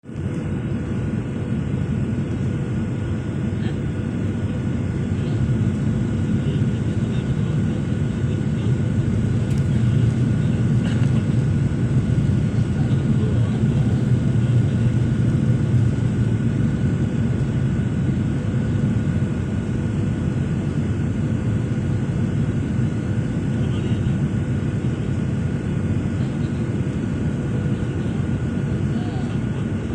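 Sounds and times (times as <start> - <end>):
airliner cabin drone: 0.0 - 29.9.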